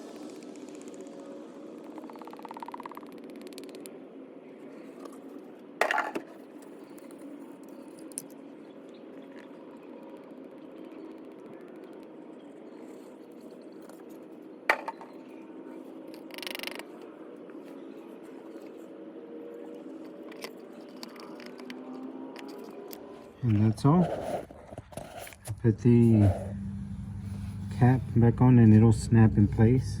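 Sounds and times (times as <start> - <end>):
steady low hum: 23.3 - 30.0.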